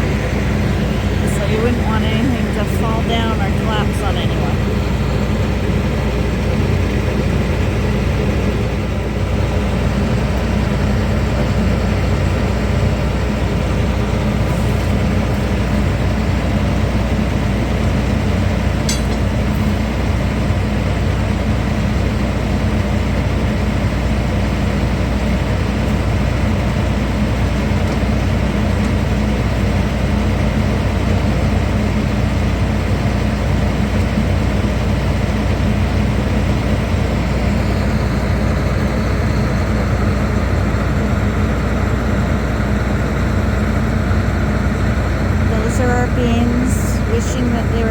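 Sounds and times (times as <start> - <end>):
combine harvester engine droning: 0.0 - 47.9.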